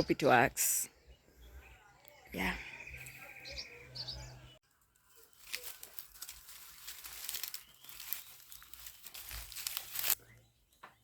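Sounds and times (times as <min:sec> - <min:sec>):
paper bags crinkling: 0:05.1 - 0:10.2.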